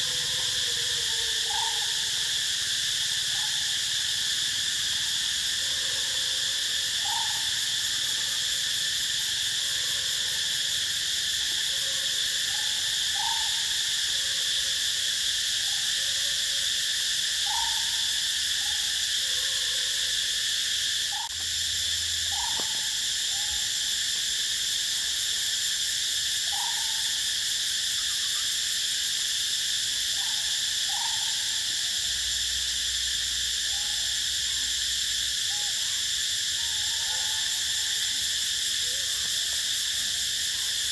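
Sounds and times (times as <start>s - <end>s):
shrill insect chorus: 0.0s - 40.9s.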